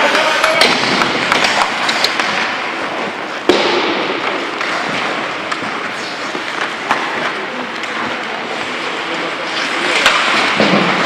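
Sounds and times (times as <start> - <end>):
sharp bang: 3.5 - 4.4.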